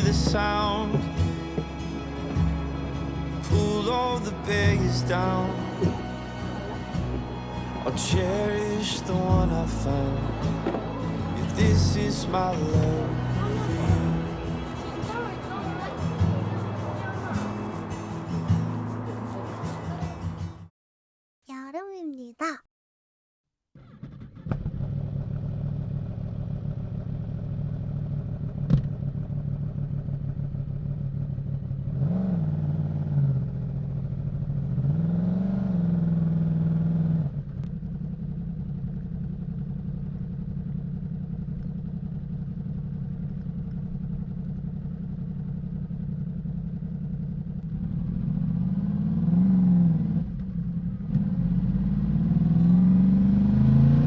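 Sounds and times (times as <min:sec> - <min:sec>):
motorcycle engine idling and revving: 0:00.0 - 0:20.6, 0:23.8 - 0:54.0.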